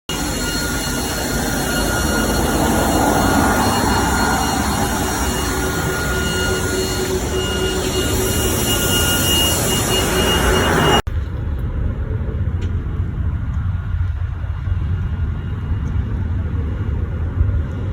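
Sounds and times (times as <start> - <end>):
equipment whistling and humming: 0.1 - 17.9
low dull rumble: 11.0 - 17.9.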